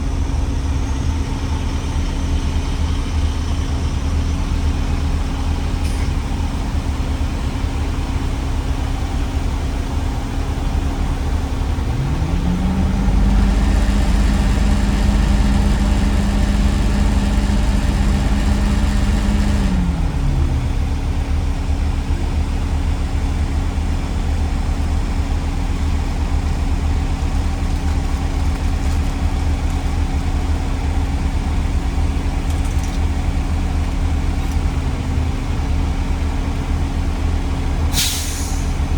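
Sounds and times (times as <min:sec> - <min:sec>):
vehicle engine rumbling and revving: 0:00.0 - 0:38.9.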